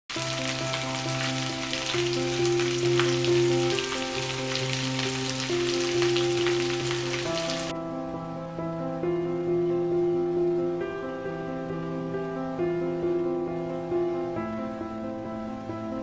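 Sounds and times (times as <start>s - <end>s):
prawns sizzling in frying pan: 0.1s - 7.7s
soft background music: 0.1s - 16.0s.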